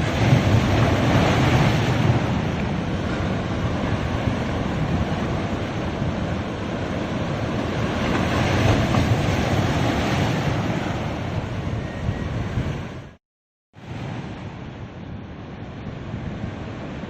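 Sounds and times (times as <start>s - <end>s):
ocean waves breaking on beach: 0.0s - 13.2s, 13.8s - 17.0s
wind buffeting microphone: 0.0s - 13.2s.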